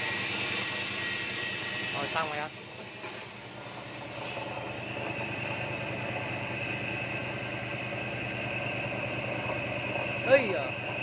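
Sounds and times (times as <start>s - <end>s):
grinder high whine: 0.0s - 11.0s
low motor hum: 4.4s - 11.0s.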